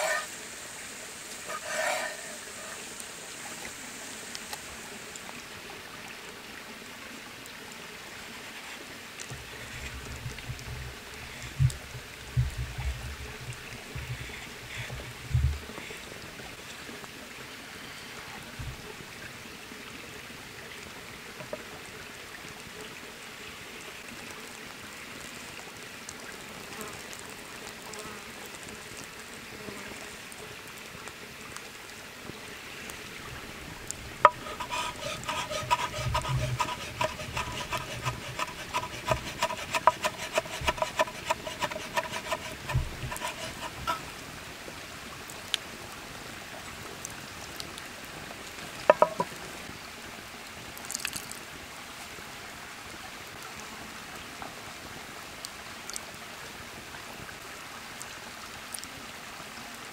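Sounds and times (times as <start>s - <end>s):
steady rushing hiss: 0.0s - 5.4s, 32.4s - 44.7s.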